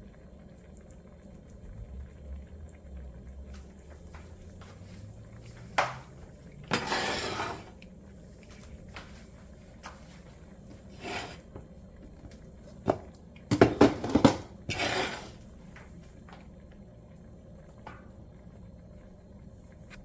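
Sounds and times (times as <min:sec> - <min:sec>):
utensils scraping: 0:06.7 - 0:07.7, 0:14.7 - 0:15.4.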